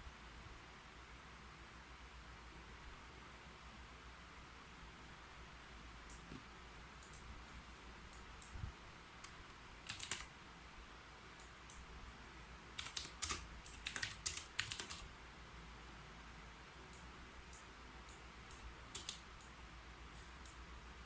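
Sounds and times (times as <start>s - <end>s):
keyboard typing: 9.2s - 10.3s, 12.7s - 15.1s, 16.9s - 19.6s.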